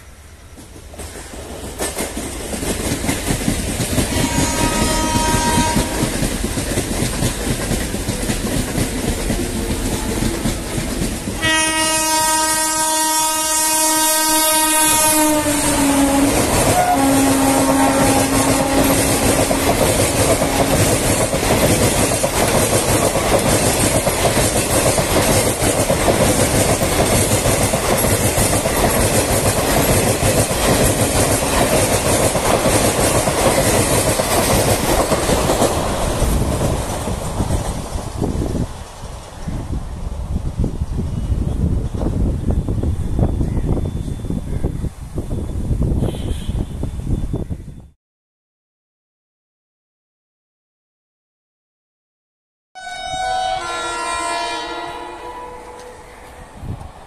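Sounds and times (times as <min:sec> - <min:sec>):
train passing at speed: 0:00.0 - 0:47.3, 0:52.8 - 0:57.0
wheels clacking over rail joints: 0:00.5 - 0:11.6, 0:17.6 - 0:38.4
train horn: 0:04.0 - 0:06.3, 0:11.4 - 0:21.1, 0:46.0 - 0:46.9, 0:52.8 - 0:56.2.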